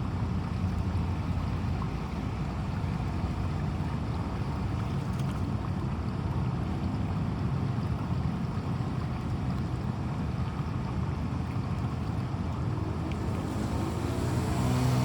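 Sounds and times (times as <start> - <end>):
storm rain and floodwater rushing: 11.6 - 15.0.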